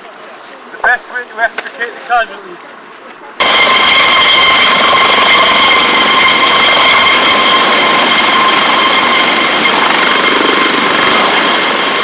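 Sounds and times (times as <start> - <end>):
rescue cutter whining: 3.4 - 12.0.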